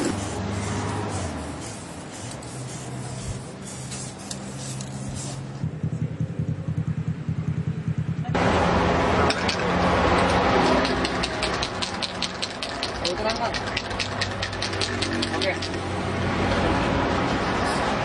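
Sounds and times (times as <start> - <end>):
vehicle engine pulsing: 0.0 - 16.0
busy street noise: 0.0 - 18.0.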